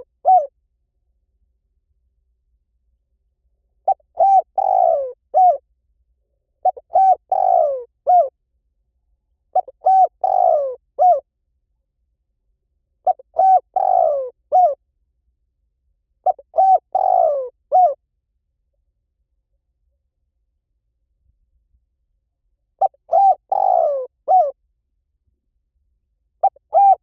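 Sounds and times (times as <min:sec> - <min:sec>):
dove cooing: 0:00.0 - 0:00.5, 0:03.8 - 0:05.6, 0:06.6 - 0:08.3, 0:09.5 - 0:11.2, 0:13.0 - 0:14.8, 0:16.2 - 0:18.0, 0:22.8 - 0:24.6, 0:26.4 - 0:27.0.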